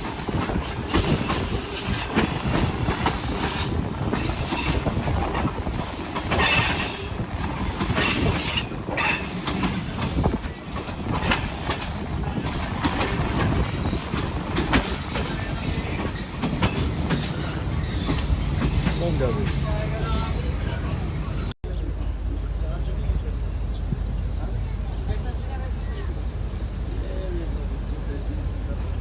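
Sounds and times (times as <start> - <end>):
train rumbling on rails: 0.0 - 29.0
high wheel squeal: 0.7 - 5.1, 5.8 - 11.6, 13.7 - 21.5.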